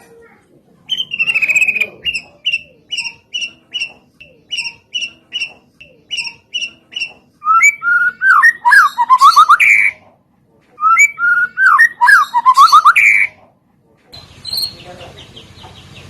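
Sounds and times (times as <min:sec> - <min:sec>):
short repeated bird chirps: 0:00.9 - 0:09.9
loud rapid whistled birdsong: 0:14.2 - 0:16.0.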